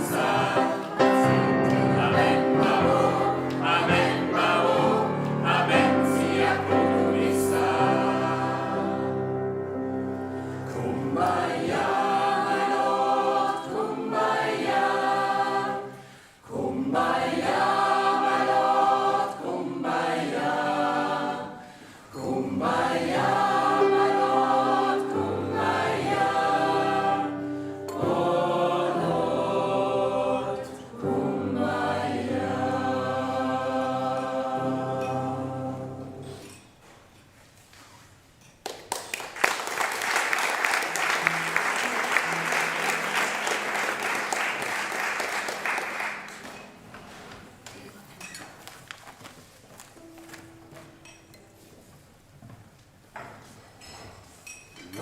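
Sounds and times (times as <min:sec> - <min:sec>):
gospel choir singing: 0:00.0 - 0:36.6, 0:39.8 - 0:47.5.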